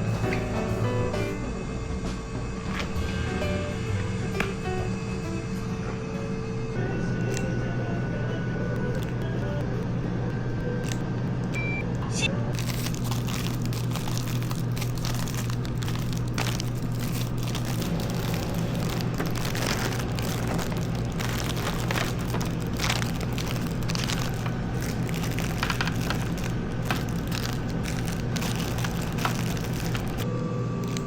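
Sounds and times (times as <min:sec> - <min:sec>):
motor humming: 0:02.0 - 0:31.0
crackling and crunching: 0:08.8 - 0:09.9, 0:12.5 - 0:30.2.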